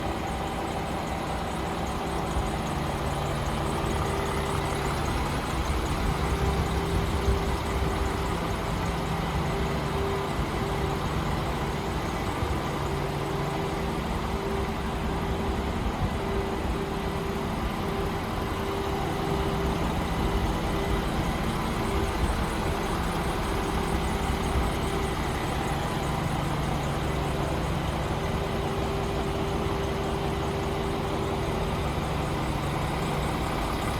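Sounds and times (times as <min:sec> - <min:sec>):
diesel truck engine idling: 0:00.0 - 0:33.9.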